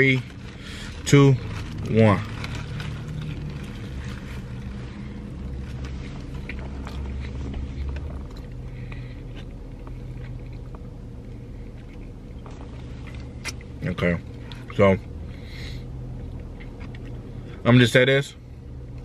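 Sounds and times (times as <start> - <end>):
car interior hum: 0.0 - 19.0
person chewing food: 1.7 - 14.7, 16.1 - 17.4.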